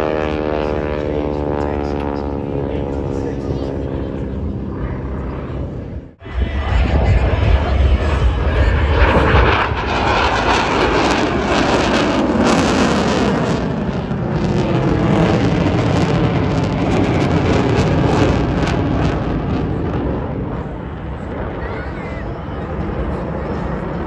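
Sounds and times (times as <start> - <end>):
propeller planes droning past: 0.0 - 24.0.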